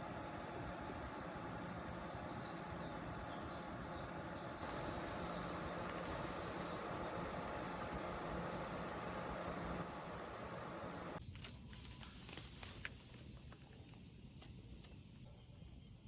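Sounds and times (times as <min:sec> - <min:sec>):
insects chirping: 0:00.0 - 0:16.0
outdoor background hiss: 0:00.0 - 0:16.0.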